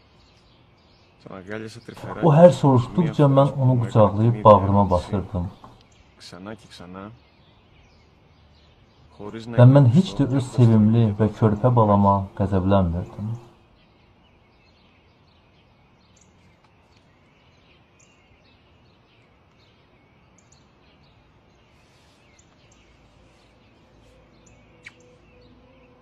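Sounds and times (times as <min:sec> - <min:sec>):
faint small birds chirping: 0:00.0 - 0:26.0
quiet outdoor background noise: 0:00.0 - 0:26.0
soft music tones: 0:01.2 - 0:07.1, 0:09.0 - 0:13.6, 0:19.7 - 0:26.0.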